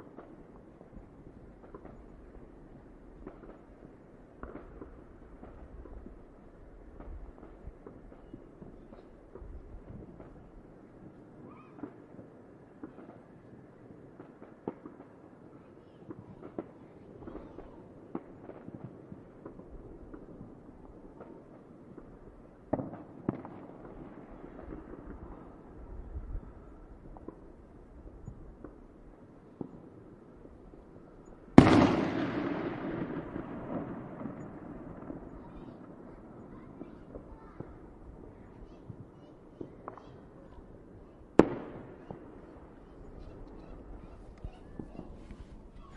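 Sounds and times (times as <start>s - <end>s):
fireworks pops and bangs: 0.0s - 45.9s
loud firework bang with echo: 31.6s - 37.8s, 41.4s - 42.6s.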